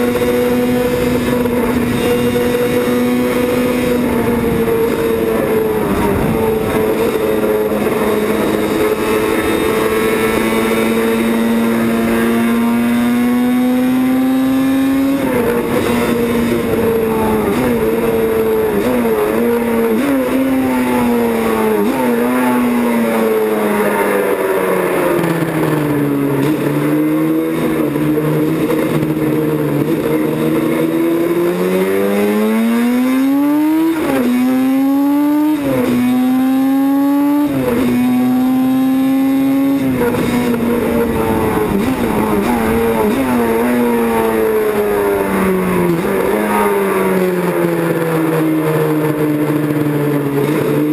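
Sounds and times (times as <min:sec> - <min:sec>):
racing motorcycle engine: 0:00.0 - 0:50.9.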